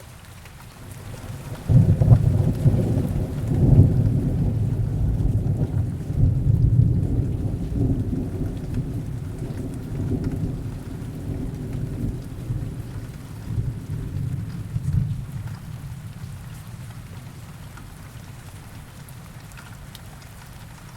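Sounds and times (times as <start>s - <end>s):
heavy rain: 0.0s - 20.9s
distant thunder rolling: 0.8s - 17.5s.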